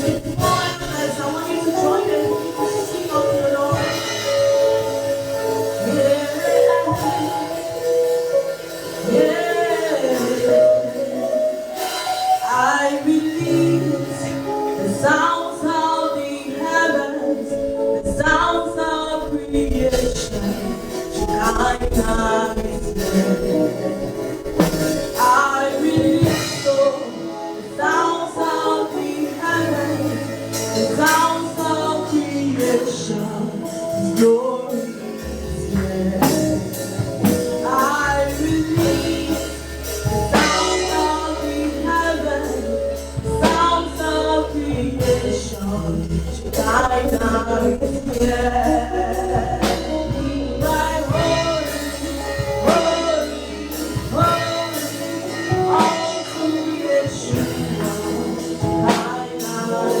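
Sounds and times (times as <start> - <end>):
sustained bass notes: 0.0 - 6.3, 17.4 - 27.0, 35.2 - 60.0
steady drum beat: 0.0 - 8.2, 17.4 - 27.3, 35.2 - 60.0
choir and singers with band: 0.0 - 60.0.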